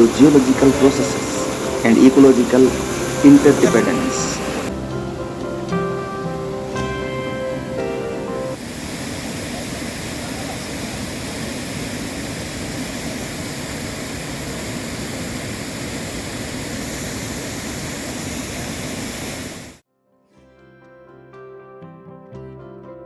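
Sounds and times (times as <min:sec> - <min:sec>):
soft plucked-string music: 0:00.0 - 0:08.6
waterfall rushing: 0:00.0 - 0:19.8.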